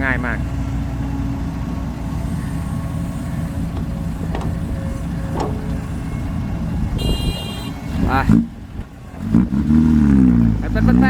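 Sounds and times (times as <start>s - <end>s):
diesel engine rumbling: 0.0s - 11.0s
short knocks: 3.4s - 7.5s.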